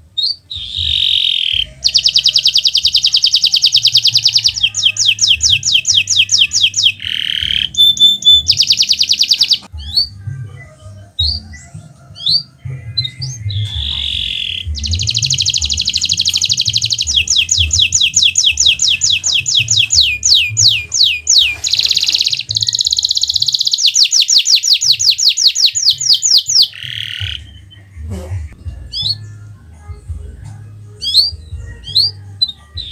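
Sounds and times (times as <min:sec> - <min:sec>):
canary chirps: 0:00.0 - 0:30.0, 0:30.6 - 0:32.9
canary singing trills: 0:00.0 - 0:32.9.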